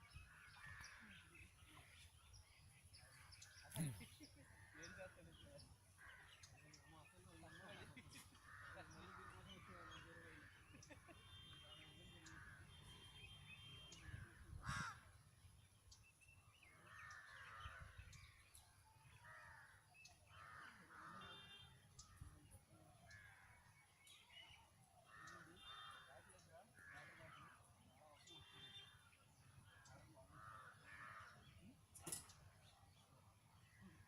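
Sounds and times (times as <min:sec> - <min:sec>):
crows cawing: 0:04.7 - 0:06.6, 0:07.4 - 0:11.3, 0:14.1 - 0:15.2, 0:16.7 - 0:18.3, 0:19.1 - 0:21.5, 0:23.0 - 0:23.8, 0:25.0 - 0:27.8, 0:29.6 - 0:31.6.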